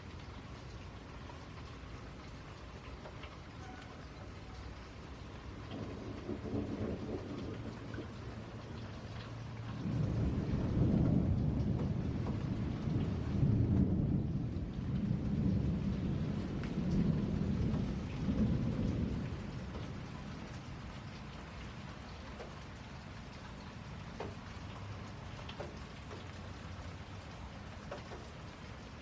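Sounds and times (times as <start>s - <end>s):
steady rain: 0.0s - 29.0s
thunder rumbling: 5.3s - 29.0s.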